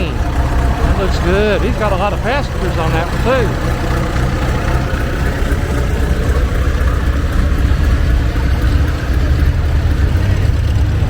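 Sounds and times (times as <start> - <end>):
diesel tractor engine running: 0.0 - 11.0.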